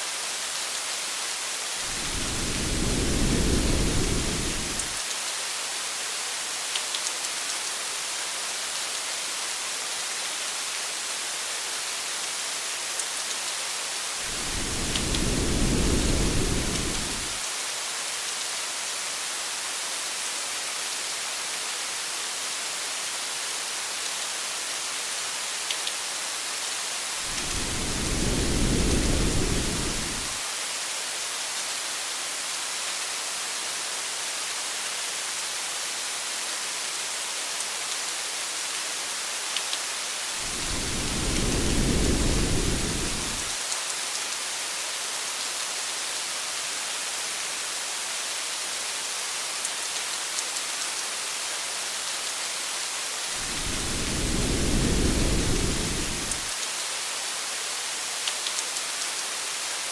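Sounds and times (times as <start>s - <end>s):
steady rain hiss: 0.0s - 59.9s
low rumble of thunder: 1.9s - 5.0s, 14.3s - 17.4s, 27.3s - 30.4s, 40.4s - 43.5s, 53.4s - 56.5s.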